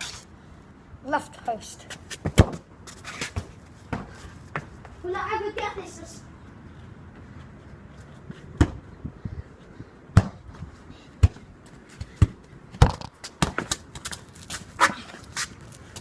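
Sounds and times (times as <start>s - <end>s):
football bouncing thuds: 10.1s - 10.4s, 12.2s - 13.7s.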